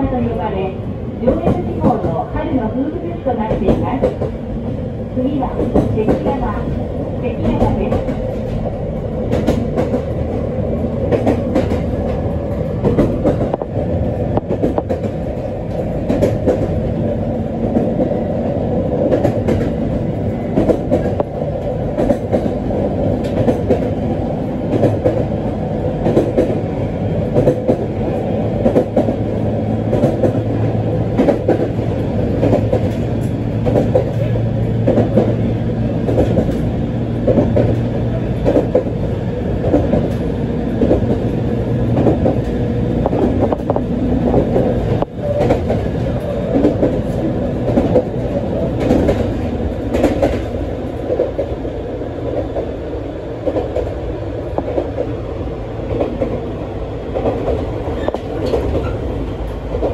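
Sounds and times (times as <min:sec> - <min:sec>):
train low hum: 0:00.0 - 0:59.9
train wheels clattering over rail joints: 0:07.4 - 0:16.9, 0:19.0 - 0:24.0, 0:27.2 - 0:39.0, 0:39.6 - 0:51.6, 0:57.1 - 0:59.9.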